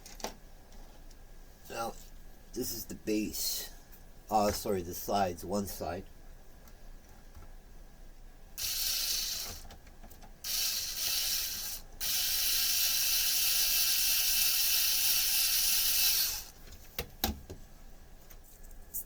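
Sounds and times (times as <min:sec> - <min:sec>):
small electric motor whirring: 0:08.6 - 0:09.7, 0:10.4 - 0:16.6.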